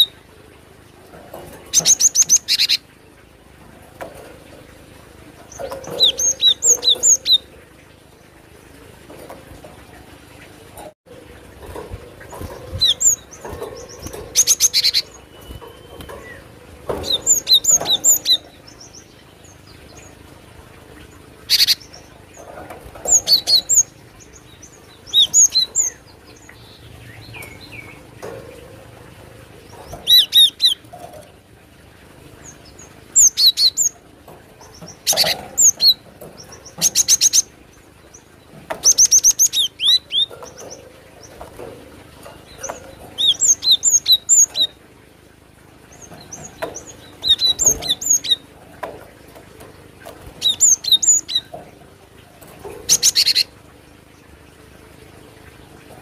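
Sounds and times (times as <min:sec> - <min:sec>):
bird chirping: 0:11.6 - 0:20.2, 0:38.1 - 0:44.8, 0:45.9 - 0:51.8, 0:52.6 - 0:53.5.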